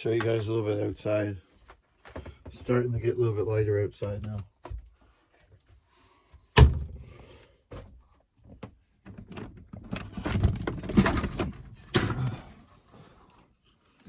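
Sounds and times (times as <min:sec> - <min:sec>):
door rattling and scraping: 0:09.2 - 0:12.5.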